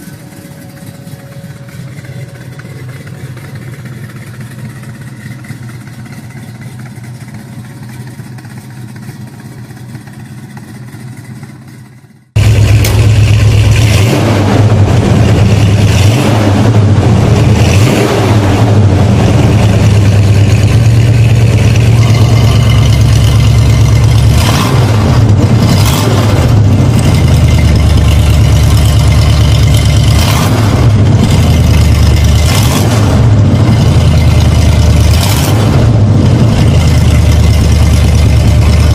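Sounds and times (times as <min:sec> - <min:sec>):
car engine revving: 0:00.0 - 0:10.4, 0:12.4 - 0:38.9
car engine running quietly: 0:00.0 - 0:15.4.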